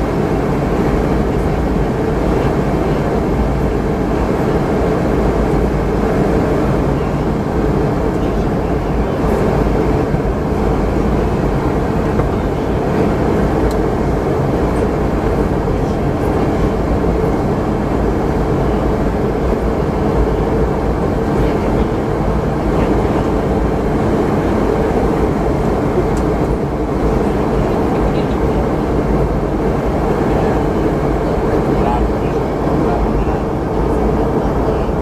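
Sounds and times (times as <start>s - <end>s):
air rushing along fuselage: 0.0s - 35.0s
low hum of jet engines: 0.0s - 35.0s.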